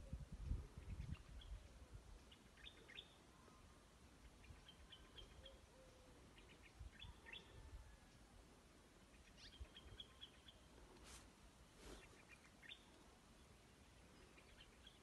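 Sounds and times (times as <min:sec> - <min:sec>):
faint small-bird chirps: 0:00.1 - 0:08.2, 0:09.1 - 0:10.8.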